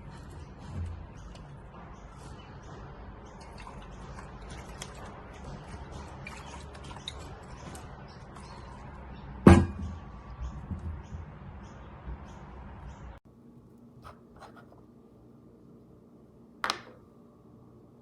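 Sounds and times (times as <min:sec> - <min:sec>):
objects clicking and tapping: 0:16.6 - 0:17.0
sharp knock: 0:16.6 - 0:17.0.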